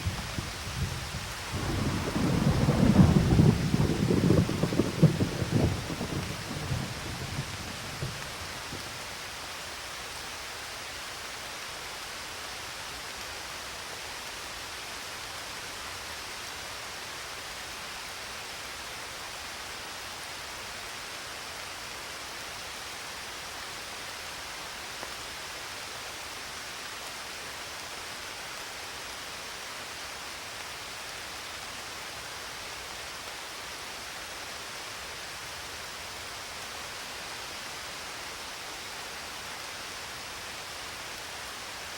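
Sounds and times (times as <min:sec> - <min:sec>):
thunder rumble: 0:00.0 - 0:09.0
steady rain hiss: 0:00.0 - 0:41.9.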